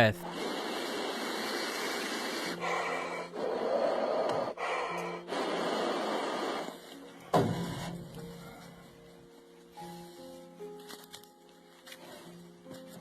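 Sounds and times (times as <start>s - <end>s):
man blowing long breaths: 0.2s - 9.1s.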